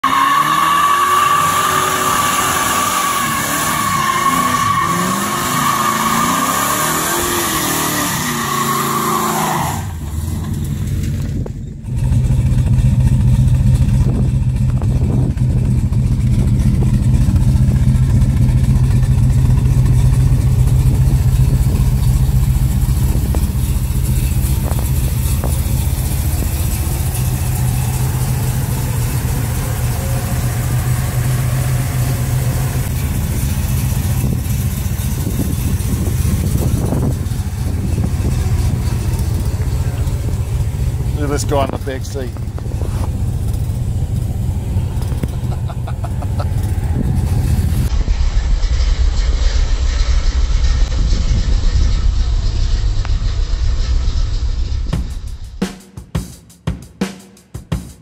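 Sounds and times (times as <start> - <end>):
tyres squealing: 0.0 - 10.2
car engine idling: 0.0 - 55.8
car engine revving: 0.0 - 55.9.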